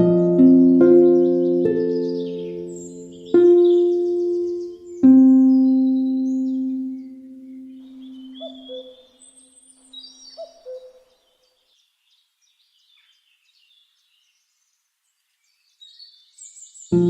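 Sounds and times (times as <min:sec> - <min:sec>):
harp: 0:00.0 - 0:08.8
soft music: 0:00.0 - 0:08.8
small birds chirping: 0:00.0 - 0:17.0.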